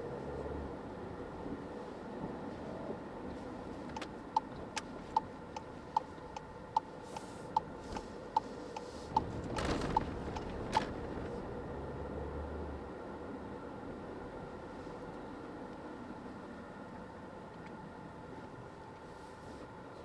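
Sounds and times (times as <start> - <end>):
road and rain noise: 0.0 - 20.0
turn signal ticking: 3.8 - 11.2.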